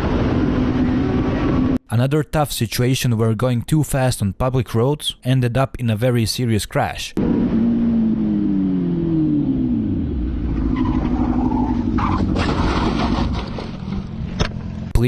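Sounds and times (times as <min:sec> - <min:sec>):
motorcycle engine slowing: 0:07.2 - 0:15.0
harsh crash noise: 0:10.6 - 0:14.1.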